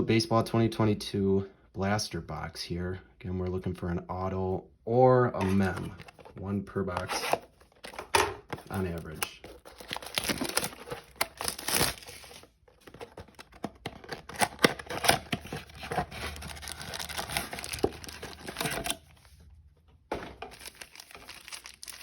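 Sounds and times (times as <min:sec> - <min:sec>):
plastic wrapping crinkling and tearing: 0:08.7 - 0:19.1, 0:20.5 - 0:22.0.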